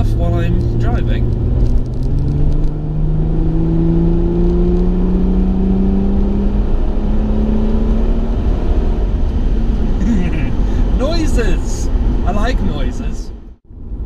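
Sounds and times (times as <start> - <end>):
car engine accelerating: 0.0 - 11.0
low road rumble: 0.0 - 14.0.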